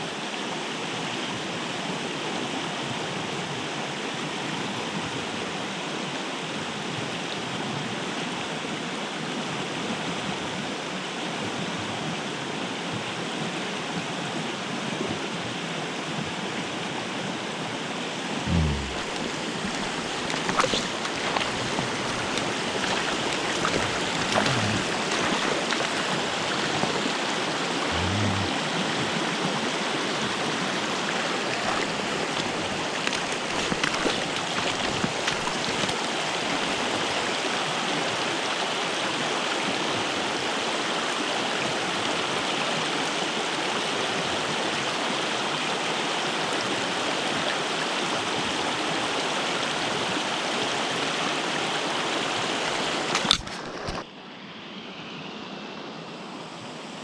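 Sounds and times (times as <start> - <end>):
stream water rushing: 12.2 - 54.6.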